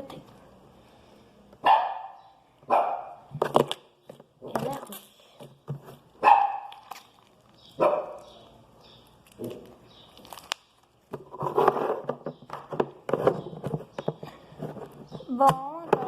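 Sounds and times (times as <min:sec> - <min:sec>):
dog barking: 0:01.6 - 0:03.2, 0:06.2 - 0:06.8, 0:07.8 - 0:08.3.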